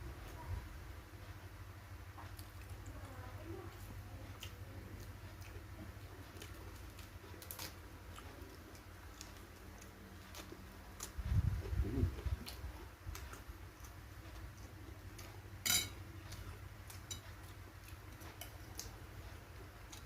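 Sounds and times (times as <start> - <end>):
chewing: 2.2 - 20.0
cutlery clicking on a plate: 15.6 - 16.0, 17.0 - 17.2.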